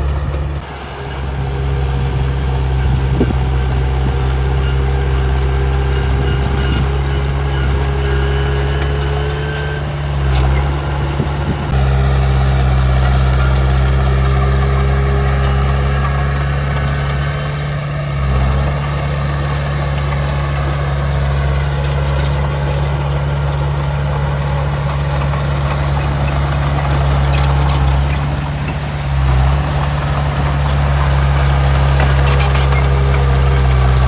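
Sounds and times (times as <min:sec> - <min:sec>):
heavy diesel engine droning: 0:00.0 - 0:34.0.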